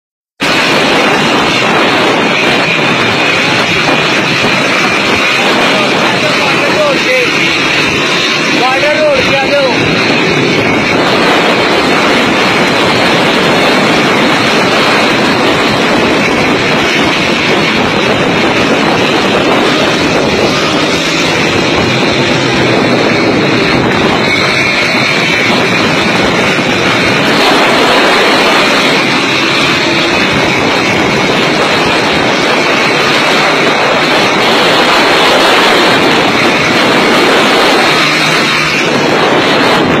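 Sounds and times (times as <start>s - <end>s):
motorcycle engine and wind noise: 0.4s - 40.0s.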